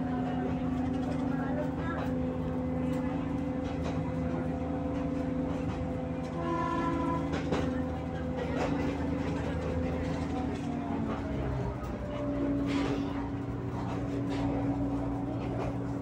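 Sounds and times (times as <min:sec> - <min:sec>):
train hum and rumble: 0:00.0 - 0:16.0.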